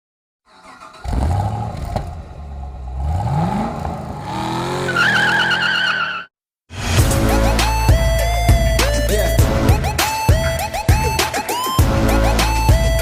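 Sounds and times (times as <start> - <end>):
car engine revving: 0.5 - 6.0
tyres squealing: 4.8 - 6.3.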